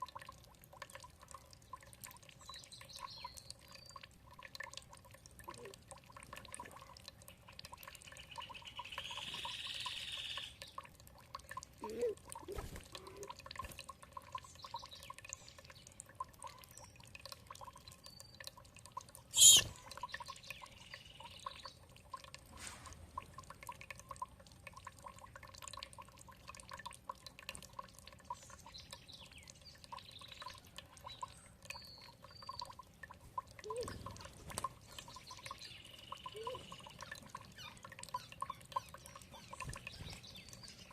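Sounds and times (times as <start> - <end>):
water dripping and trickling: 0.0 - 40.9
birds chirping: 19.4 - 21.8, 33.6 - 40.9.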